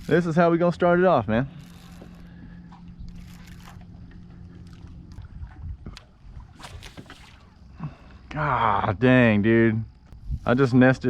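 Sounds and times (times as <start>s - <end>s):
low steady hum: 0.0s - 11.0s
faint clicks of fishing tackle: 1.5s - 7.5s.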